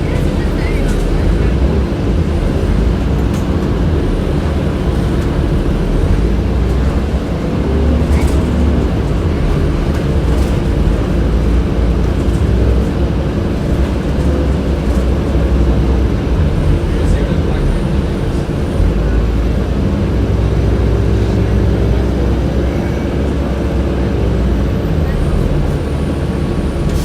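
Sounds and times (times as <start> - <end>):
bus engine and road rumble: 0.0 - 27.0
bus ventilation hum: 0.0 - 27.0.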